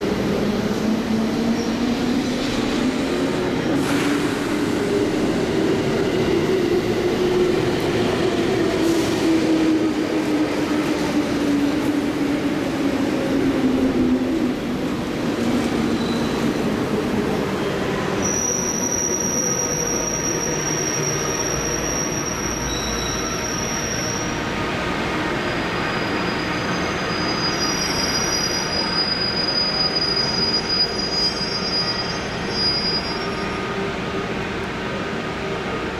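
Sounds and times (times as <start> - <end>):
train brakes squealing: 15.5 - 16.8, 17.6 - 33.8.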